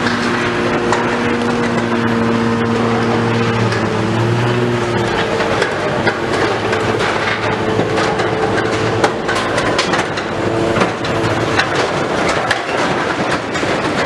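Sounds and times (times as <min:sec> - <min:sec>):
demolition machinery running: 0:00.0 - 0:14.0
debris clattering and knocking: 0:03.0 - 0:14.0.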